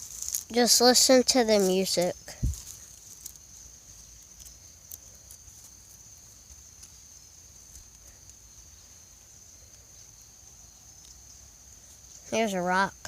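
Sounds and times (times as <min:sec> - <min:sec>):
soft ticks: 0:04.2 - 0:05.7, 0:11.0 - 0:11.2.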